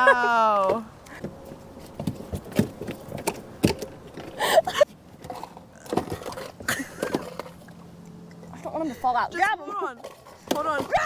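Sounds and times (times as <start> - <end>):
knocks and clicks of gear handling: 1.0 - 7.6.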